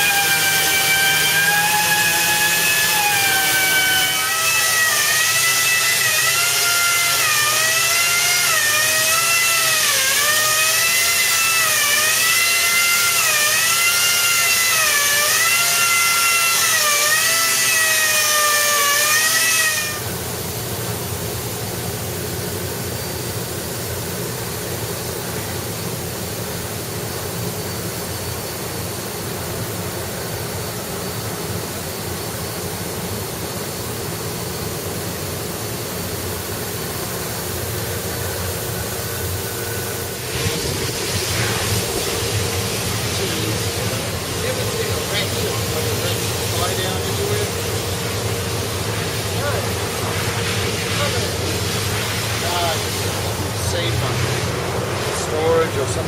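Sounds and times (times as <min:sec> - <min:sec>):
power tool motor whining: 0:00.0 - 0:20.2, 0:36.9 - 0:54.0.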